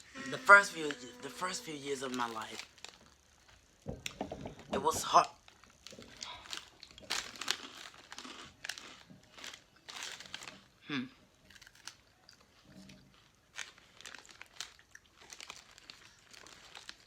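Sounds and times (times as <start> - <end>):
brief falling vocal sound: 0.0 - 1.8
plastic snack bag crinkling: 0.0 - 3.8, 4.9 - 10.8, 11.4 - 17.0.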